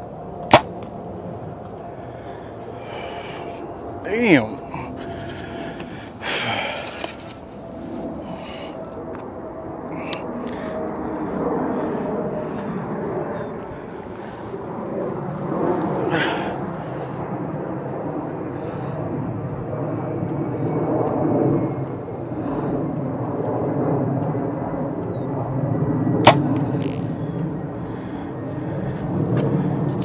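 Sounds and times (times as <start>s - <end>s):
wind rumbling on microphone: 0.0s - 30.0s
bow shot snap: 0.5s - 0.8s, 26.3s - 27.0s.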